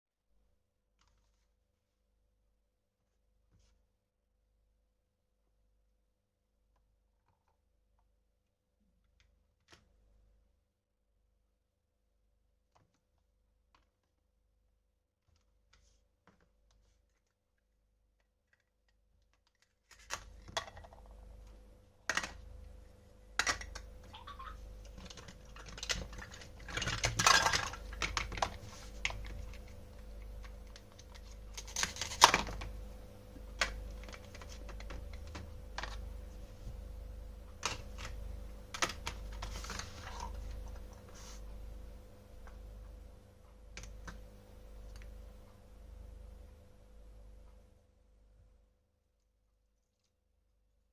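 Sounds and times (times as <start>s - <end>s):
faint steady hum: 0.4s - 50.9s
toy kitchen pieces clicking: 18.4s - 21.1s, 22.1s - 22.4s, 23.4s - 29.7s, 30.4s - 32.7s.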